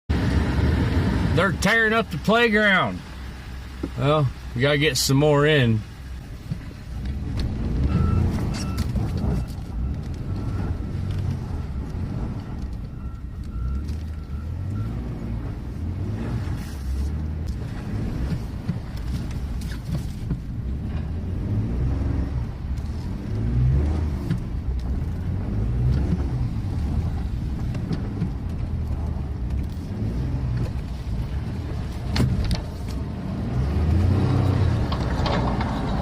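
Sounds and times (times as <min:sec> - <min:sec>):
pickup engine revving: 0:13.4 - 0:36.0.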